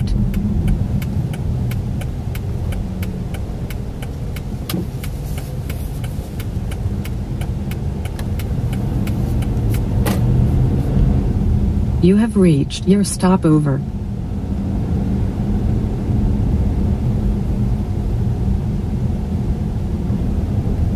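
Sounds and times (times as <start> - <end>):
light evenly spaced ticks: 0.0 - 9.9
road and engine rumble: 0.0 - 20.9.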